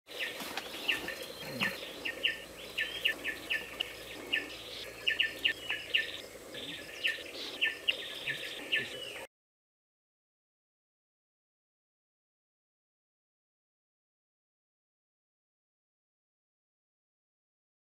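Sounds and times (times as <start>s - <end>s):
background hiss: 0.1s - 9.3s
small birds chip notes: 0.2s - 9.2s.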